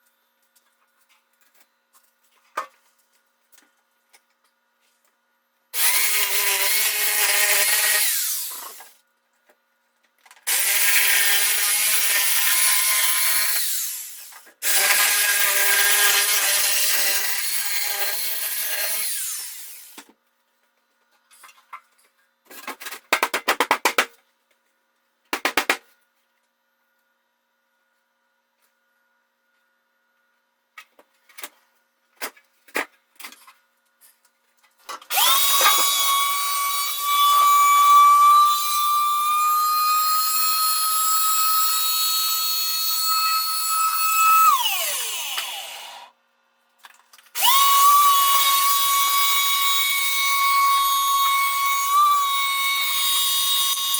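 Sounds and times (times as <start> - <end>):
power saw cutting wood: 5.8 - 9.0, 10.5 - 20.0, 35.1 - 46.1, 47.4 - 53.9.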